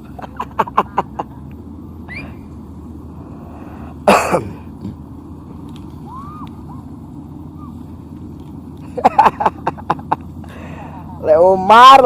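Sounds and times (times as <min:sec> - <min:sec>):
low engine hum: 0:00.0 - 0:12.0
person coughing loudly: 0:04.0 - 0:04.6.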